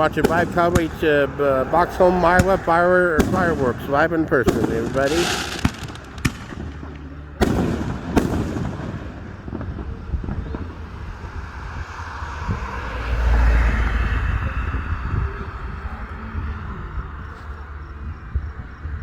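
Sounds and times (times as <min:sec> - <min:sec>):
fireworks crackling: 0:00.0 - 0:14.9
deep low rumble: 0:00.0 - 0:19.0
firework shell bangs: 0:02.3 - 0:10.4.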